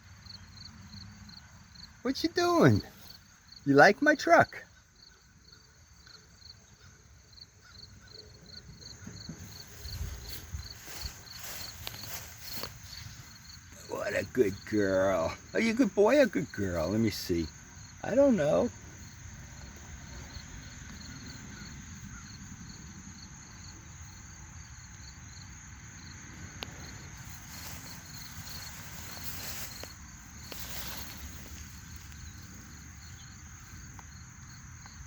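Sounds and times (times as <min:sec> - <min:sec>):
insects chirping trill: 0:00.0 - 0:35.0
low outdoor rumble: 0:26.2 - 0:33.9
brief rustles: 0:27.2 - 0:32.2.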